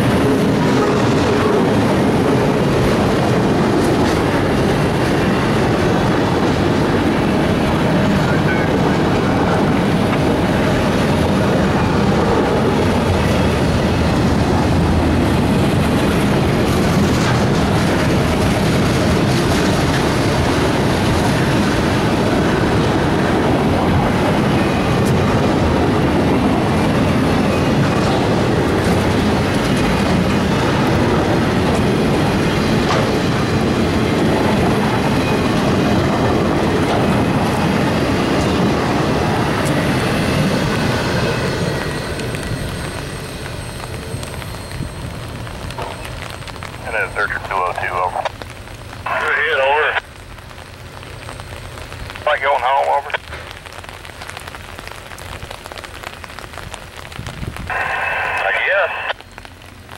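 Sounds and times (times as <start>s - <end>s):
steel wheels rumbling on rail: 0.0s - 46.9s.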